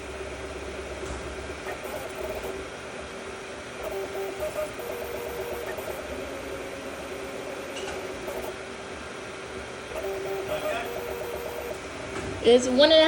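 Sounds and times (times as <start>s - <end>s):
stepper motors whining: 1.6s - 2.6s, 3.8s - 8.6s, 9.9s - 11.9s.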